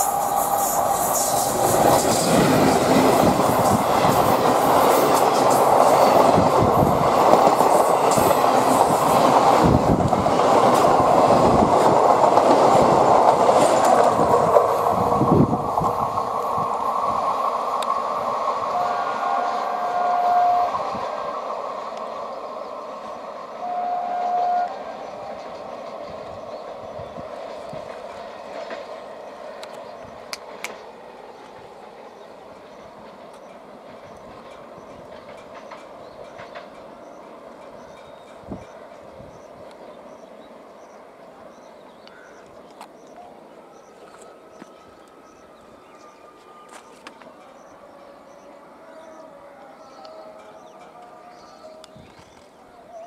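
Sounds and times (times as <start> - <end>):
train horn blasts: 18.6 - 21.3, 23.5 - 25.6, 44.1 - 52.2
train wheels clattering over joints: 32.0 - 39.9.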